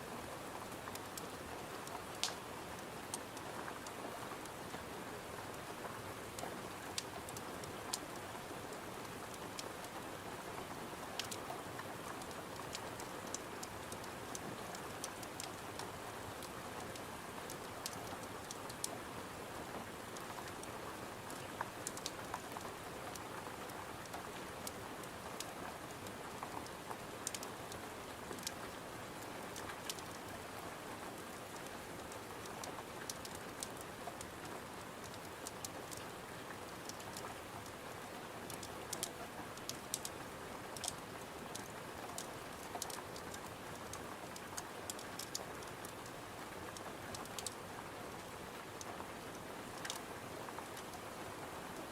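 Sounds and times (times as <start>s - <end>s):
rain falling against a window: 0.0s - 51.9s
wood fire crackling: 0.9s - 4.8s, 11.2s - 19.0s, 21.3s - 30.4s, 31.3s - 36.0s, 38.5s - 46.4s, 47.2s - 47.6s.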